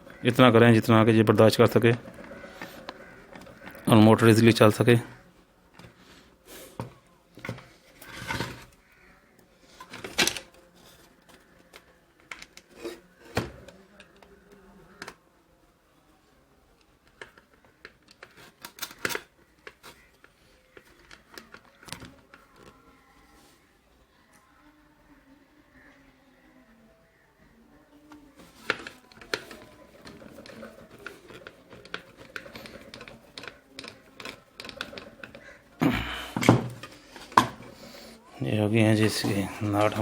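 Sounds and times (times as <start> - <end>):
small metal clicks and scrapes: 1.3 - 5.2, 17.0 - 22.7, 28.4 - 35.8.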